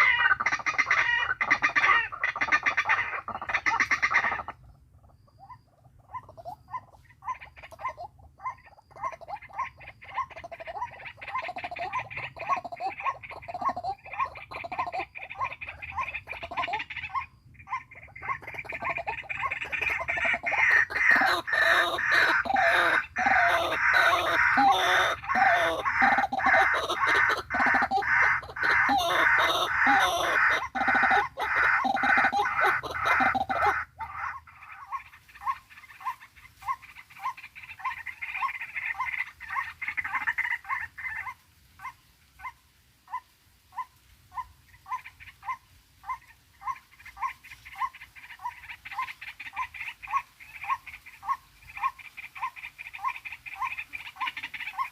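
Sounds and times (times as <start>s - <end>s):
waterhens croaking chorus: 0.0s - 54.9s.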